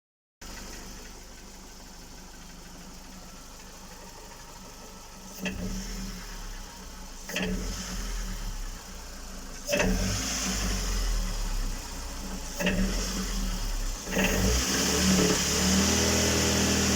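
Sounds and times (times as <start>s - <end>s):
engine knock: 0.4s - 5.8s
car engine idling and revving: 0.4s - 16.9s.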